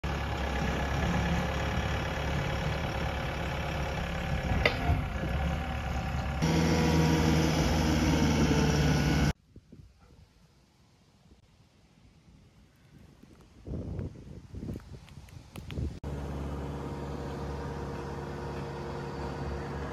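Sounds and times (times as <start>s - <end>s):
loader engine running: 0.0s - 9.4s, 16.0s - 19.9s.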